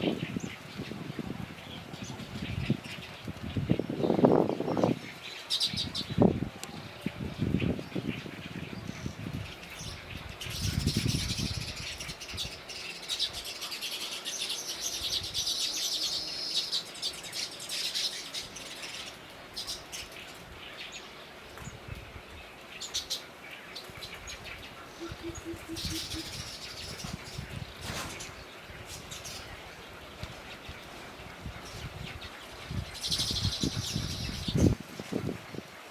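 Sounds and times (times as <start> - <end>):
small birds chirping: 7.0 - 34.8.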